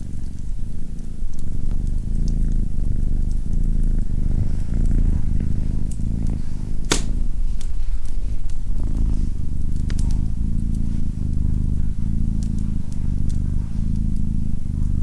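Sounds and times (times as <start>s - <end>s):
cat purring: 0.0s - 15.0s
wood fire crackling: 0.0s - 15.0s
sharp crack of fire: 6.8s - 8.6s.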